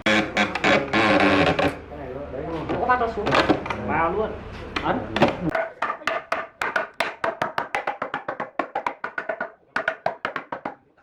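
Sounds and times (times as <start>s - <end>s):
hollow wooden knocks: 4.8s - 10.8s.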